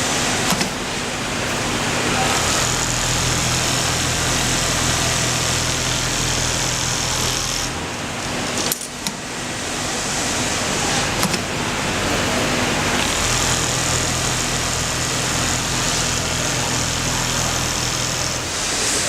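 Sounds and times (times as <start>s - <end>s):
sewing machine humming: 0.0s - 19.0s
sharp mechanical clicks and knocks: 0.4s - 0.8s, 11.2s - 11.6s.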